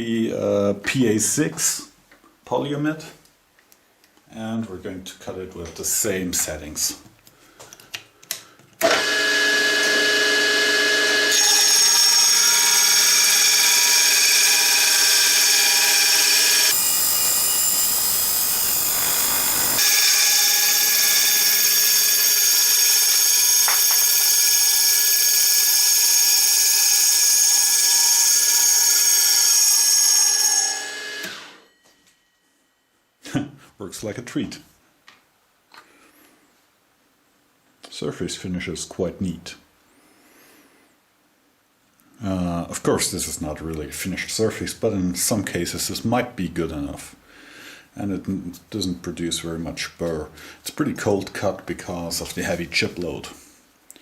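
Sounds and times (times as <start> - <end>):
circular saw blade cutting plastic: 8.8 - 31.6.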